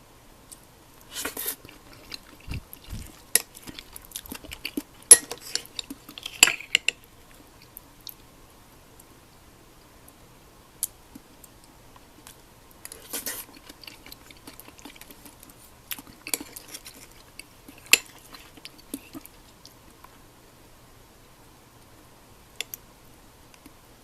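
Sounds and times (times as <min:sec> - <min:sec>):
utensils clinking on dishes: 0:05.1 - 0:07.0.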